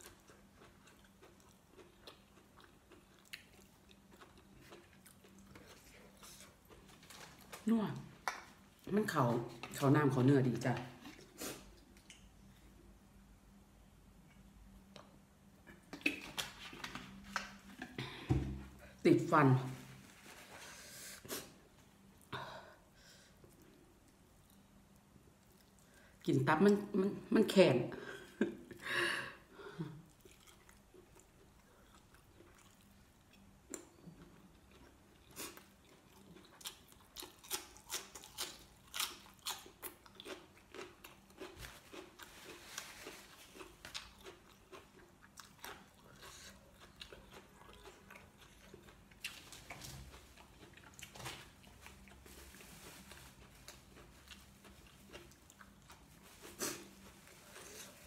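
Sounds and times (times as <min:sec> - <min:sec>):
person chewing crunchily: 0:00.0 - 0:08.9, 0:30.0 - 0:58.0.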